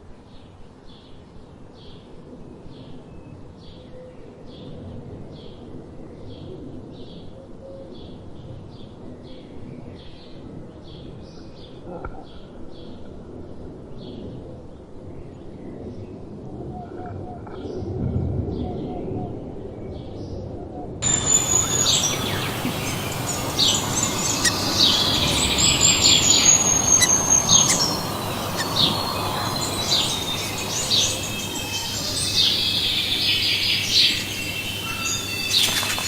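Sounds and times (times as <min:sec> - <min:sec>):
small bird high call: 0:21.0 - 0:36.0.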